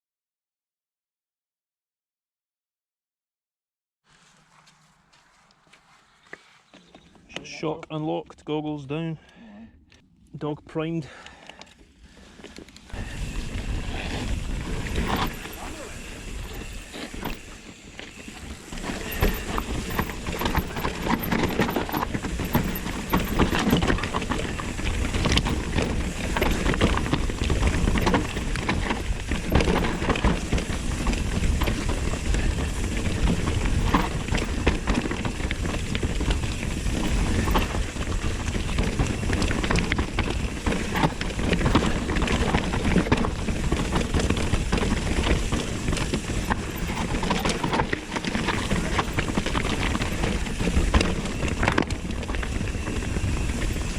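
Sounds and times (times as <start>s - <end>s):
bike tyres on dirt and rock: 4.1s - 8.3s, 11.0s - 53.9s
bike knocking and rattling: 11.1s - 53.9s.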